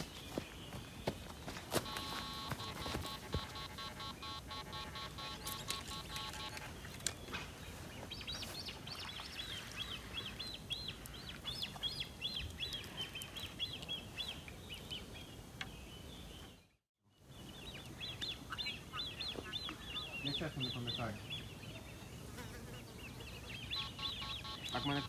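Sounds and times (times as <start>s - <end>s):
bird high chirps: 1.8s - 7.4s, 23.1s - 25.0s.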